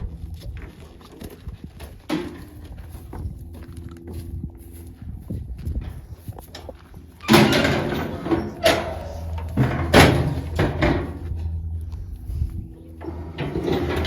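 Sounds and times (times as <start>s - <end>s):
metal gates clanging: 6.5s - 14.0s
loud metal crash: 7.3s - 11.5s.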